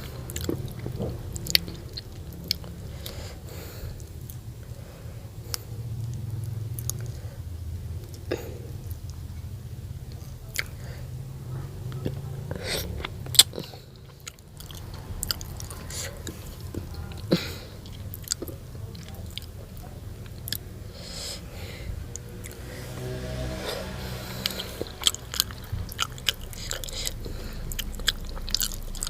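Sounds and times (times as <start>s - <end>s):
crunchy chewing and biting: 24.5s - 29.0s.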